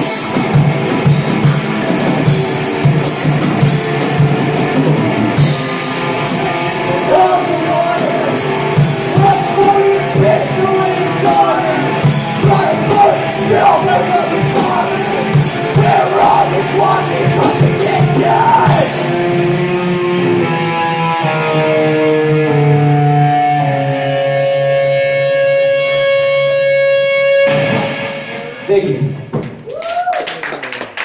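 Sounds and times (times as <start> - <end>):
drums: 0.0 - 20.6, 27.3 - 30.2
long held guitar notes: 0.0 - 29.4
electric guitar: 0.0 - 30.1
person singing: 6.7 - 19.4.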